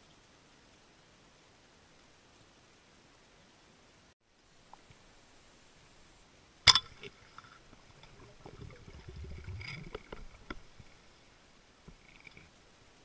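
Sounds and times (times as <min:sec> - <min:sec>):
underwater clicks: 0:06.7 - 0:11.0
low underwater rumble: 0:07.8 - 0:11.0.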